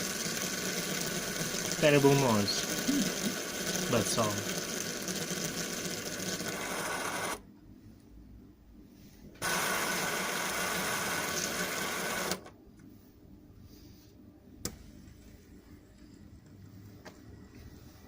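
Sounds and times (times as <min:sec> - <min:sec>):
small machine running roughly: 0:00.0 - 0:07.4, 0:09.4 - 0:12.5.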